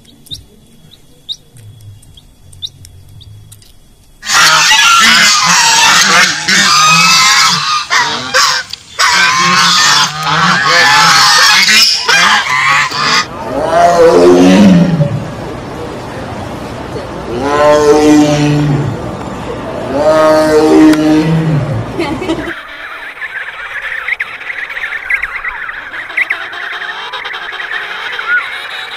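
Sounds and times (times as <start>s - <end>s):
chicks peeping: 0.0s - 3.2s
geese honking: 4.2s - 13.3s, 22.4s - 28.9s.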